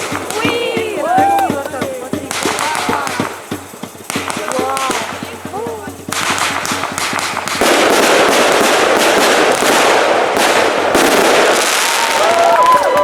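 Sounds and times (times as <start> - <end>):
continuous hiss: 0.0 - 13.0
fireworks crackling: 0.0 - 13.0.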